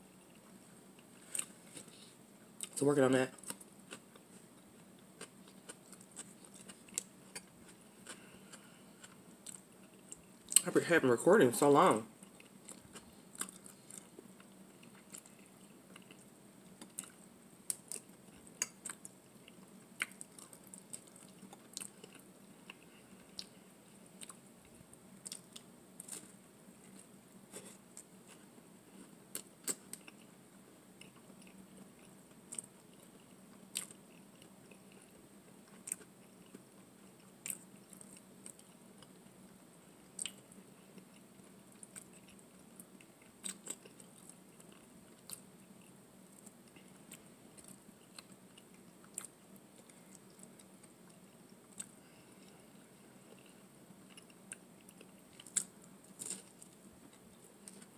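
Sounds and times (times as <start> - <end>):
faint low hum: 0.0 - 57.9
chewing and biting food: 3.4 - 10.6, 12.2 - 23.6, 40.2 - 52.5, 53.3 - 57.9.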